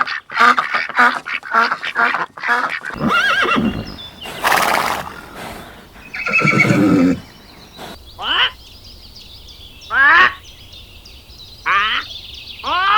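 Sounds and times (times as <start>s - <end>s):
ducks quacking: 0.3s - 8.0s
horse snorting: 2.9s - 8.0s
horse whinnying: 2.9s - 8.0s.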